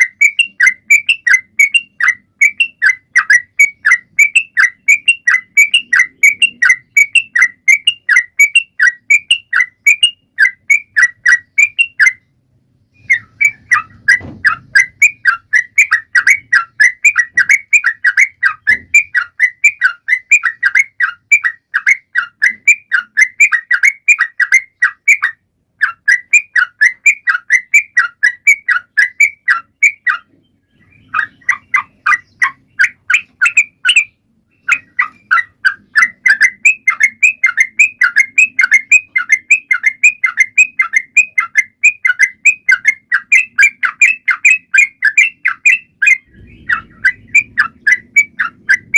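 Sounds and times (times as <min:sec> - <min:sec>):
bird singing quick sharp notes: 0:25.9 - 0:48.9.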